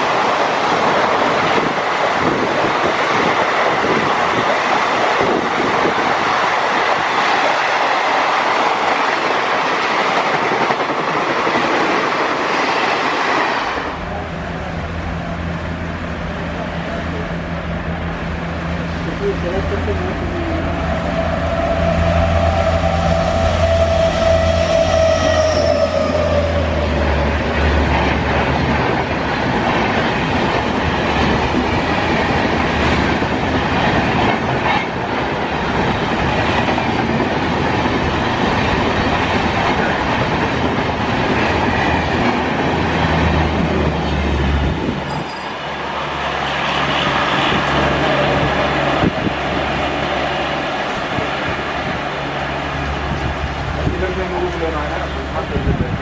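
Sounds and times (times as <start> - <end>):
train horn: 20.5 - 27.1.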